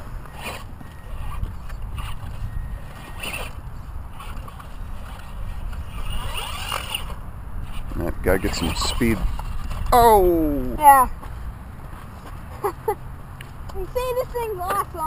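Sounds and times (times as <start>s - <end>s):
toy truck motor whirring: 0.0s - 11.0s
wind rumble on microphone: 0.0s - 12.0s.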